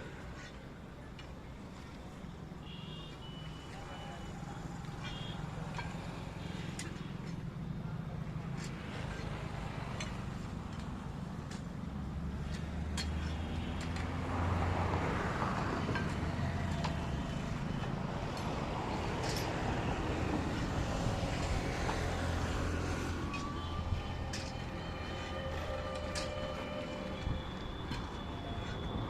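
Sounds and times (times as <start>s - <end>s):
low engine drone: 16.5s - 29.0s.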